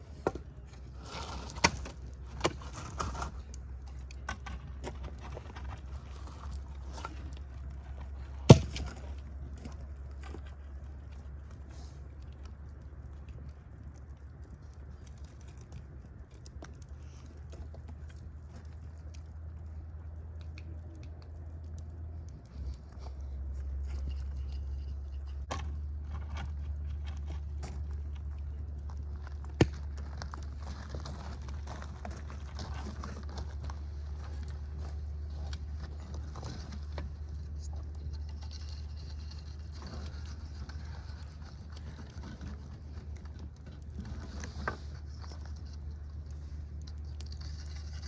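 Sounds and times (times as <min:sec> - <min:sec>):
fire crackling and popping: 0:00.0 - 0:48.0
low fire rumble: 0:00.0 - 0:48.0.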